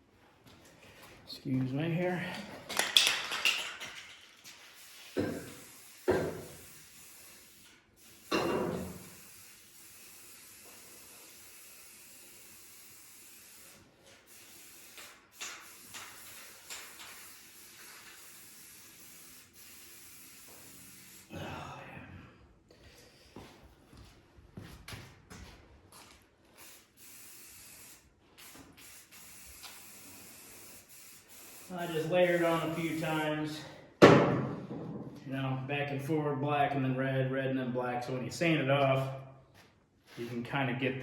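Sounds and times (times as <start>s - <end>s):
spray-paint can hissing: 2.8s - 21.3s, 26.5s - 33.3s.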